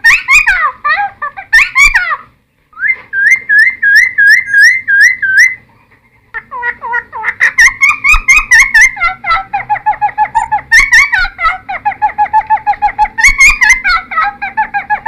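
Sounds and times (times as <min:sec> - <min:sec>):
bird singing whistled phrases: 0:02.8 - 0:05.6.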